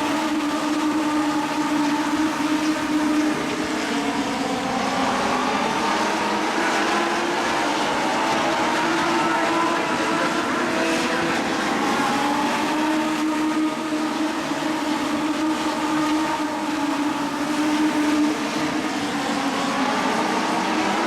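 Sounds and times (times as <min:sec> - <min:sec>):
race car engines droning: 0:00.0 - 0:21.0.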